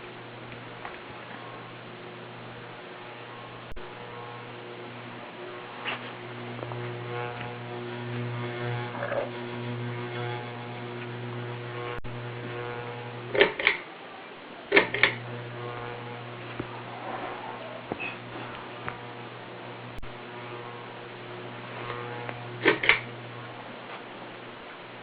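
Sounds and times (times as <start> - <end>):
ceiling fan motor humming: 0.0 - 25.0
sharp clicks: 13.3 - 13.9, 14.7 - 15.3, 21.8 - 23.2.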